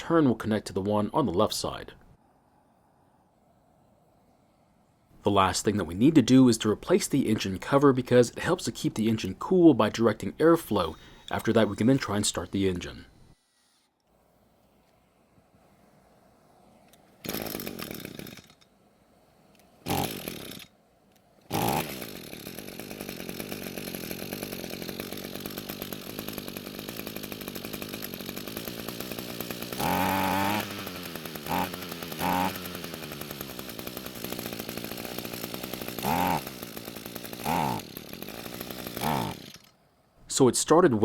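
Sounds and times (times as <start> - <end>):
trimmer engine idling: 6.6 - 13.5, 17.2 - 18.7, 19.5 - 39.8
string trimmer engine pull-started: 10.6 - 13.9, 16.9 - 18.7, 19.8 - 39.8.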